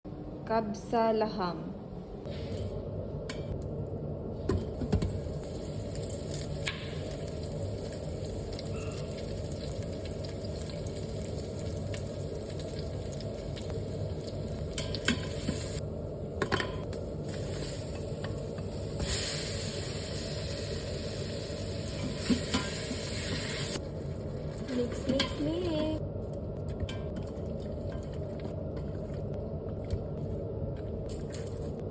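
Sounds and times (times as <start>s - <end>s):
food sizzling in a pot: 5.1s - 15.8s, 16.9s - 26.0s.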